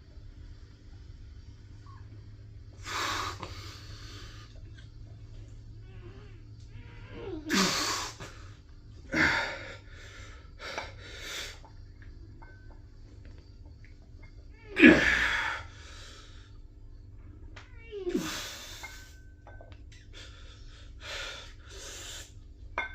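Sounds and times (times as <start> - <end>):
person grunting: 14.7 - 15.6.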